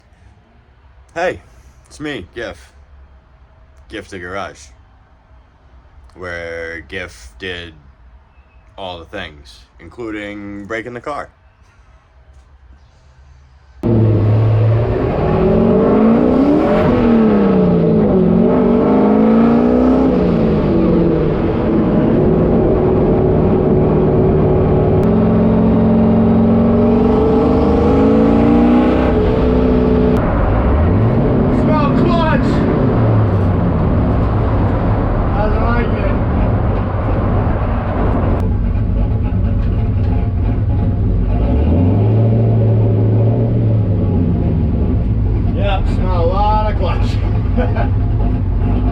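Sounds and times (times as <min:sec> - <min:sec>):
rushing noise: 0:13.1 - 0:48.9
car engine revving hard: 0:13.8 - 0:38.6, 0:39.8 - 0:48.9.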